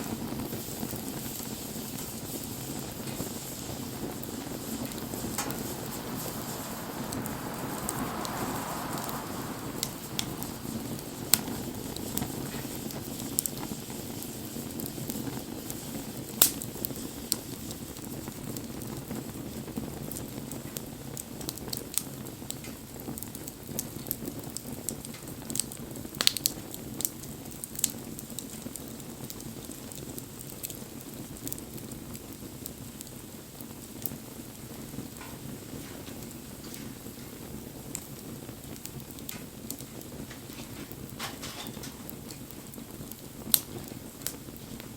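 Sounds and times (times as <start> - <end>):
bonfire flame rushing: 0.0 - 44.9
burning wood crackling and popping: 0.0 - 44.9.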